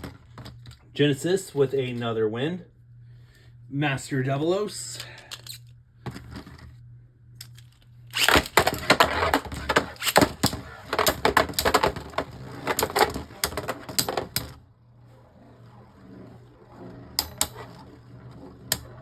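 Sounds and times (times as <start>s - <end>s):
spinning tops clashing in plastic arena: 7.4s - 14.6s, 16.5s - 19.0s.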